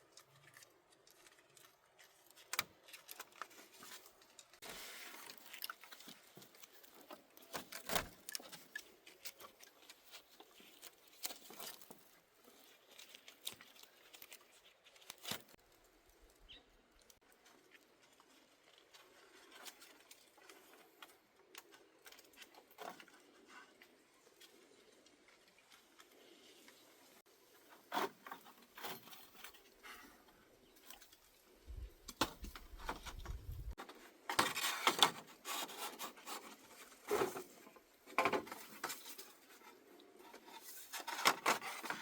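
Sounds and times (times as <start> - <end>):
rustling: 27.6 - 42.0.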